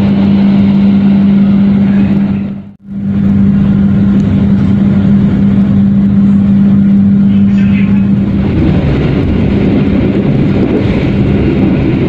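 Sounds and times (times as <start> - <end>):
train passing alongside: 0.0 - 12.0.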